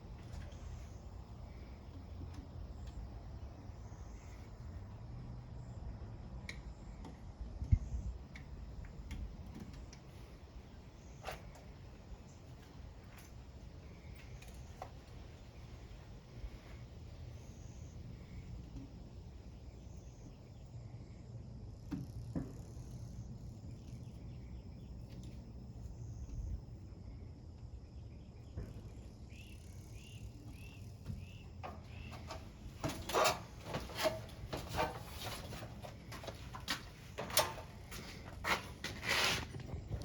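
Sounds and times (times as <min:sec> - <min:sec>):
handling clicks and rustles: 0:31.2 - 0:40.0.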